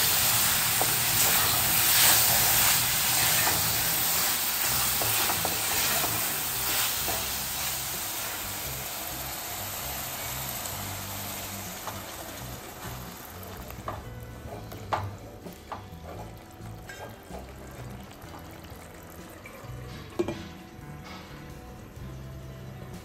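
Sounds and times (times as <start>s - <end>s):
prawns sizzling in hot oil: 0.0s - 20.3s
spatula stirring in pot: 0.1s - 8.2s.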